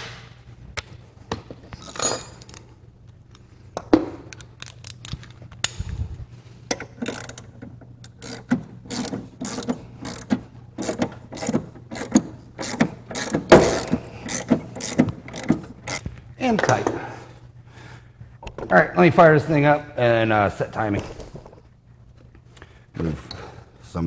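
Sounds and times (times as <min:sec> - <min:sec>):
metal clinks: 0:01.8 - 0:02.6
hand ratchet clicking: 0:06.7 - 0:16.1.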